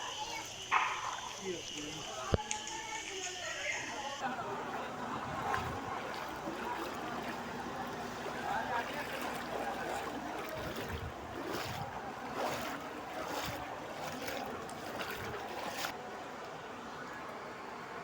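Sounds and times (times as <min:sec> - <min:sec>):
floodwater splashing and sloshing: 0:04.1 - 0:17.2.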